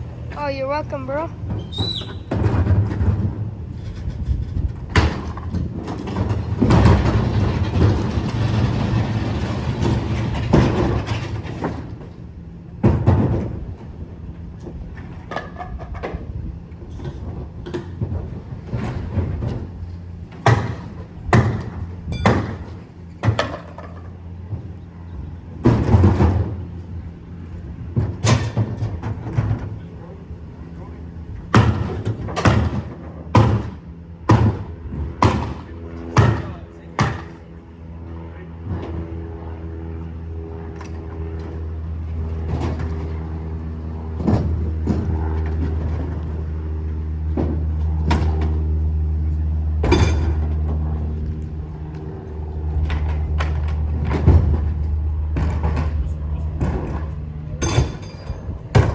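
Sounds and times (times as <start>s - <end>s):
diesel engine running: 0.0s - 58.9s
noisy clatter: 0.0s - 58.9s
loud bangs and clanks: 2.2s - 12.1s, 31.5s - 37.4s, 52.7s - 58.9s.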